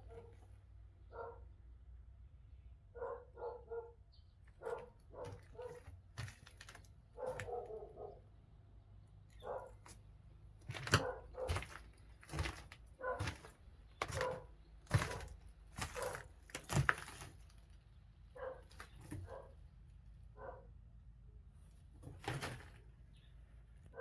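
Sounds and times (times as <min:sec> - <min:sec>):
dog barking: 0:01.1 - 0:01.5, 0:02.9 - 0:04.0, 0:04.6 - 0:05.9, 0:07.2 - 0:08.3, 0:09.4 - 0:09.8, 0:10.8 - 0:11.6, 0:13.0 - 0:13.4, 0:14.1 - 0:14.5, 0:15.9 - 0:16.2, 0:18.4 - 0:19.6, 0:20.4 - 0:20.7.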